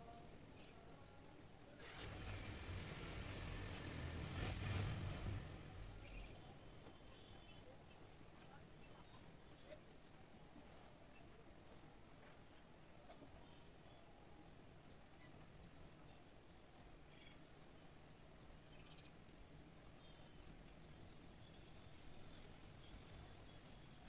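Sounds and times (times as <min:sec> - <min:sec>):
bird chirping: 0:00.0 - 0:00.2, 0:02.7 - 0:14.0
low rumble: 0:02.2 - 0:06.8.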